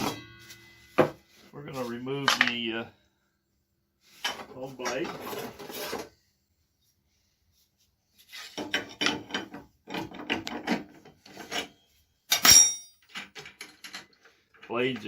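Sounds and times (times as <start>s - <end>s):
metal parts scraping and clattering: 4.2s - 6.1s, 8.3s - 14.2s
sharp metallic clank: 12.3s - 13.0s.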